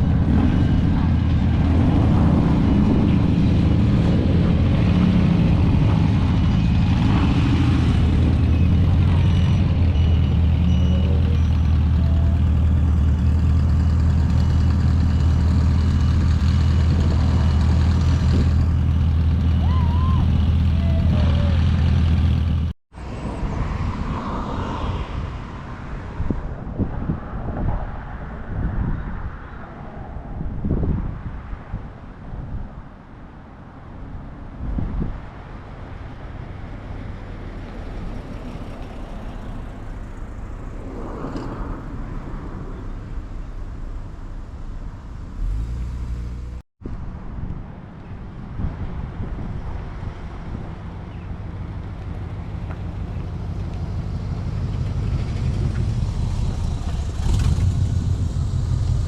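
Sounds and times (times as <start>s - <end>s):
vehicle engine humming: 0.0s - 24.2s, 35.6s - 46.6s, 49.7s - 59.0s
cars driving past: 0.0s - 32.0s, 35.0s - 46.6s, 48.5s - 59.0s
outdoor noise: 0.0s - 59.0s
traffic noise: 0.0s - 59.0s.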